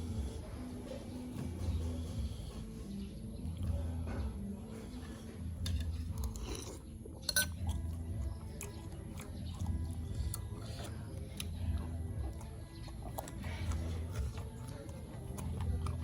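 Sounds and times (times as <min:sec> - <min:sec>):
low steady hum: 0:00.0 - 0:16.0
person chewing food: 0:05.5 - 0:16.0
spoon clinking against dish: 0:05.6 - 0:07.7.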